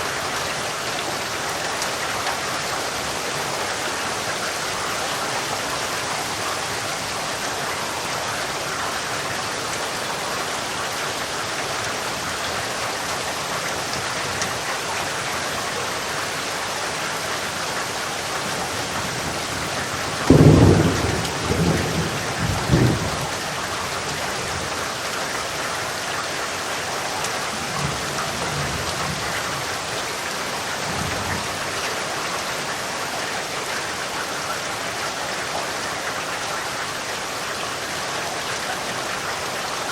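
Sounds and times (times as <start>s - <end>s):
rain falling: 0.0s - 39.9s
low thunder rumbles: 20.1s - 23.5s
loud thunderclap: 20.2s - 23.4s.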